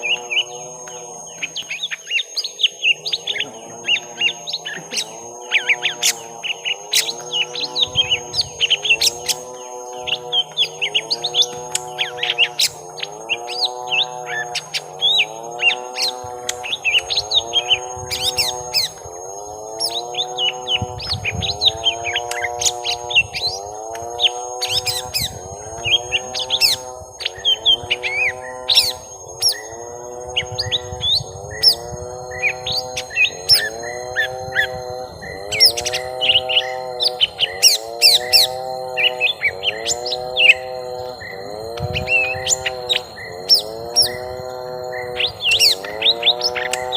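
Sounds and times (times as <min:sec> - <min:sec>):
birds chirping and twittering: 0:00.0 - 0:46.9
low arching bird call: 0:00.0 - 0:46.9
thin high whine: 0:00.0 - 0:46.9.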